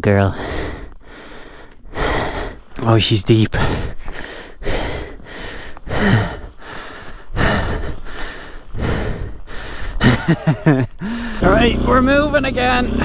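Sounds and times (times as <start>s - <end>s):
person breathing hard: 0.2s - 11.5s
person grunting: 5.9s - 6.6s.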